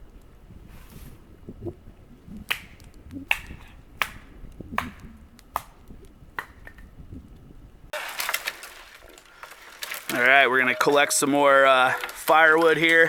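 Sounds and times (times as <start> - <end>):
soft rustle: 0.6 - 1.4
wood snapping: 2.4 - 6.9, 7.9 - 10.5, 11.9 - 13.0.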